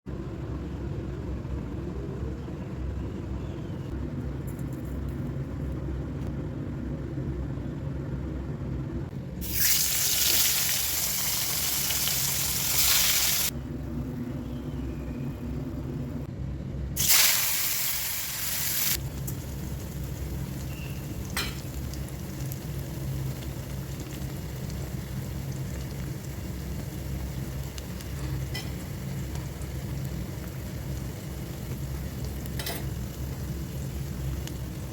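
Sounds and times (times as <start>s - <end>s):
steady low hum: 0.1s - 9.8s, 13.4s - 17.0s
food frying in hot oil: 9.4s - 13.5s, 17.0s - 34.9s
loud sizzle: 9.4s - 14.8s, 17.0s - 34.9s.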